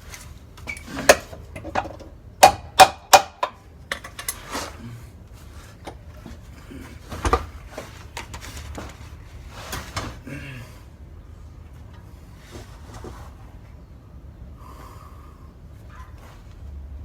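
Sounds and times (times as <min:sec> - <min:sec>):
metal tools clanking: 0:02.7 - 0:04.8.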